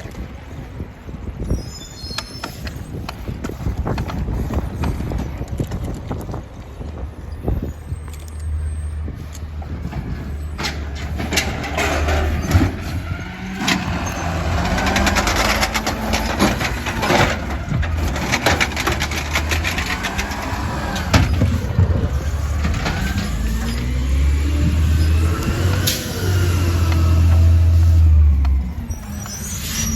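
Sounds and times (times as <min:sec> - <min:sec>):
whine sliding up and down: 0:07.5 - 0:29.9
truck engine running: 0:08.6 - 0:29.0
clanks and knocks: 0:09.8 - 0:23.9.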